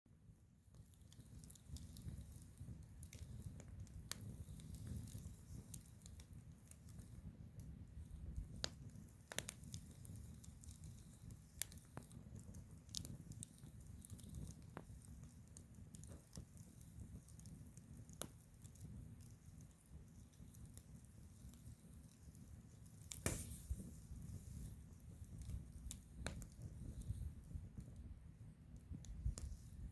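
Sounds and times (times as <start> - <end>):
fire popping: 0.1 - 29.9
wood fire crackling: 0.1 - 29.9.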